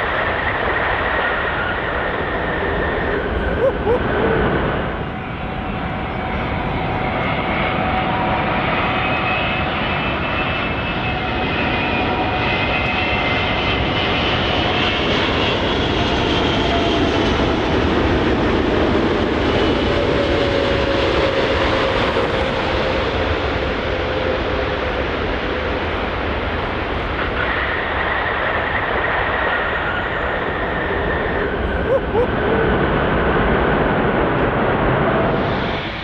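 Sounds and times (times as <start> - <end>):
airplane engine drone: 0.0 - 36.0.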